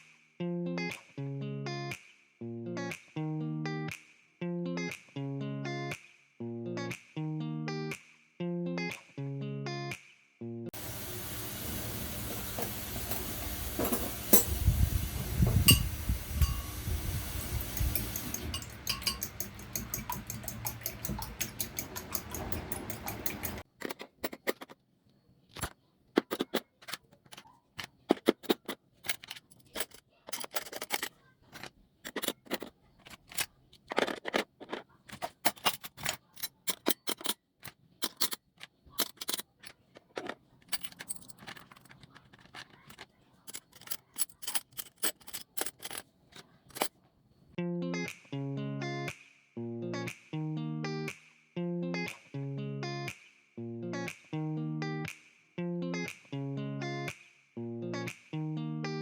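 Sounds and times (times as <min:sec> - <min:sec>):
steady hiss: 0:10.8 - 0:18.5
dishes and utensils clinking: 0:10.9 - 0:24.8, 0:26.2 - 0:38.4, 0:39.0 - 0:46.9.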